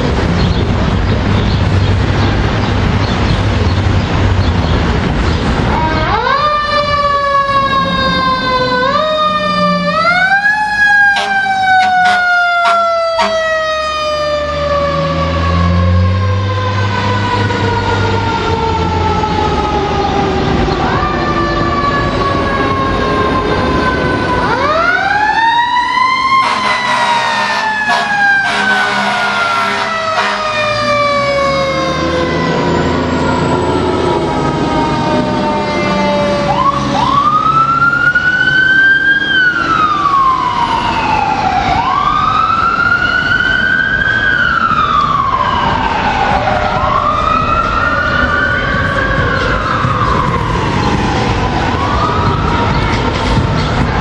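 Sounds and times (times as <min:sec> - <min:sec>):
fire truck sirens wailing: 0:00.0 - 0:54.0
truck engines: 0:00.0 - 0:54.0
horn blasts: 0:11.1 - 0:13.6, 0:26.4 - 0:30.8.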